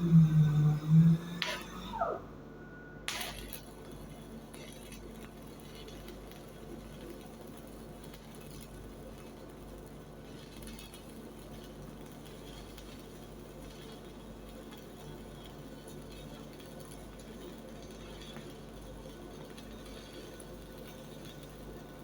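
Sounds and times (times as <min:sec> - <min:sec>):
welding arc crackling: 0:00.0 - 0:02.3, 0:03.1 - 0:22.0
low hum: 0:00.0 - 0:03.5.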